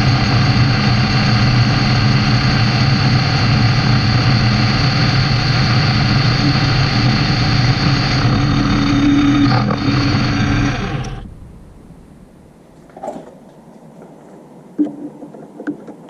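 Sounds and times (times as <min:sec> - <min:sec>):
metal lathe running: 0:00.0 - 0:11.4.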